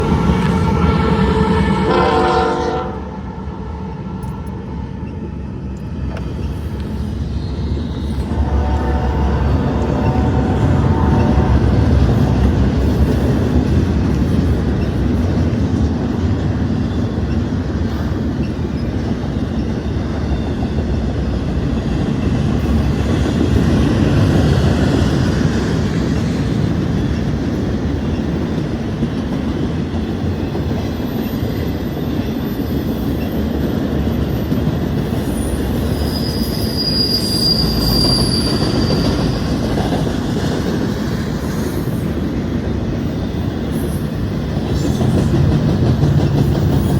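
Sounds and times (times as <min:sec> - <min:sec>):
train wheels rumbling on rail: 0:00.0 - 0:46.9
high wheel squeal: 0:06.2 - 0:13.1, 0:35.1 - 0:39.8.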